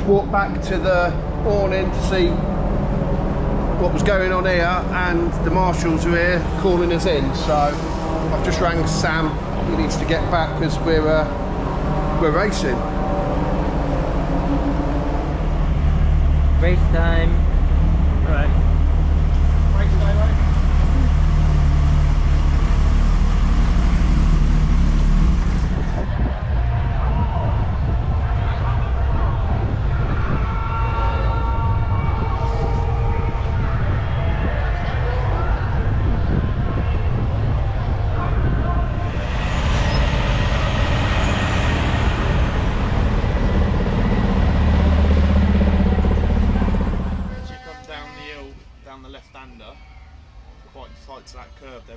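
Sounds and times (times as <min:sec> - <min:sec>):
vehicle engine droning: 0:00.0 - 0:30.6, 0:31.2 - 0:48.0
truck engine running: 0:12.9 - 0:26.2, 0:38.9 - 0:47.4.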